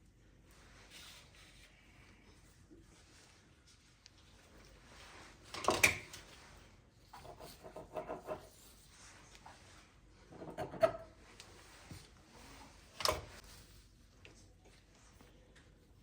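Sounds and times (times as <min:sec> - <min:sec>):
light rubbing and scraping: 0:06.2 - 0:13.9.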